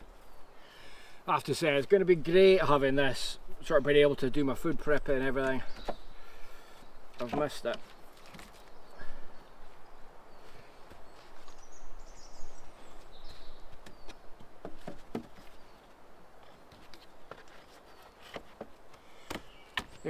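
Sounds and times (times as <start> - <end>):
steady background hiss: 0.0 - 8.0
light sharp knocks and clicks: 7.1 - 8.8.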